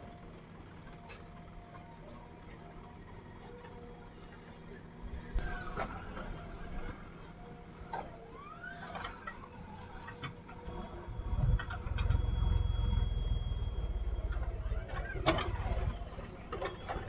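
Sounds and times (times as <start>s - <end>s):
diesel engine running: 0.0s - 17.0s
metal parts squealing: 8.8s - 17.0s.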